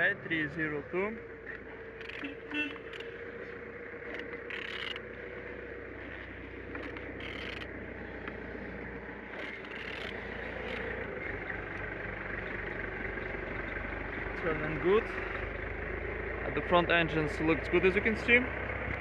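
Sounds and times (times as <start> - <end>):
engine crank rasping: 1.3 - 8.3, 9.1 - 11.9.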